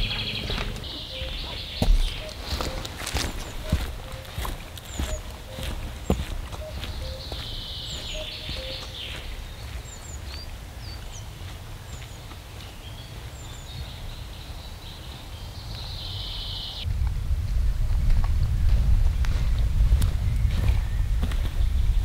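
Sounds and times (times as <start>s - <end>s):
low rumble: 0.0s - 2.7s, 16.8s - 22.0s
buzzy bird trill: 0.0s - 9.4s
birds chirping and whistling: 0.0s - 16.9s, 20.2s - 22.0s.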